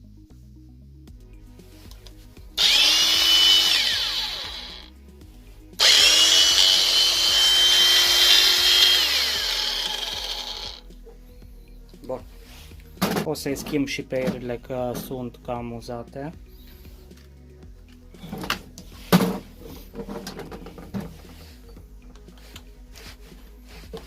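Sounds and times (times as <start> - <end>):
angle grinder whining: 2.6 - 4.9, 5.8 - 10.8.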